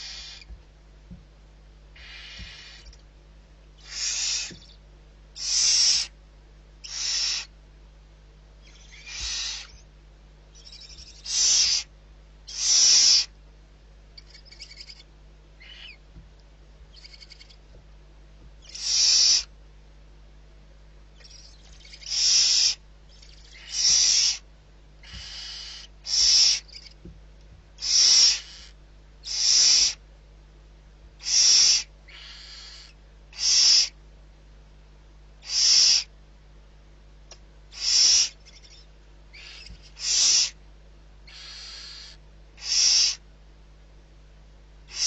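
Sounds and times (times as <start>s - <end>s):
owl hissing screeches: 0.0s - 0.5s, 2.0s - 2.9s, 3.8s - 4.8s, 5.4s - 6.2s, 6.8s - 7.5s, 8.6s - 9.8s, 10.6s - 11.9s, 12.5s - 13.3s, 14.2s - 15.0s, 15.6s - 16.0s, 16.9s - 17.6s, 18.6s - 19.5s, 21.2s - 24.4s, 25.0s - 27.0s, 27.8s - 30.0s, 31.2s - 34.0s, 35.4s - 36.1s, 37.7s - 40.6s, 41.3s - 43.2s.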